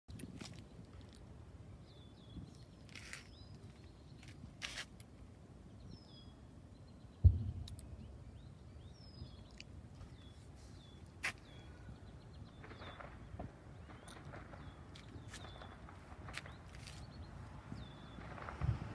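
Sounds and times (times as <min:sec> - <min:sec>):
quiet outdoor ambience: 0:00.1 - 0:18.9
small bird chirping: 0:05.8 - 0:18.5.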